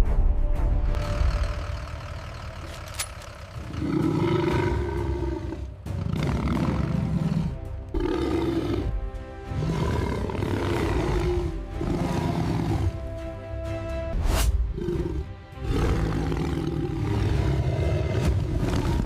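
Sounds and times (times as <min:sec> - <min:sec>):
background music: 0:00.0 - 0:19.0
lions roaring: 0:03.4 - 0:13.0, 0:14.8 - 0:19.0.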